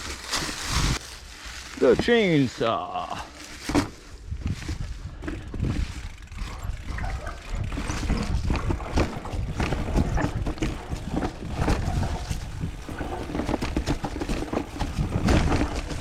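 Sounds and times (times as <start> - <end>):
bike rattling over rough ground: 0.0 - 16.0
wind rumbling on microphone: 4.0 - 16.0.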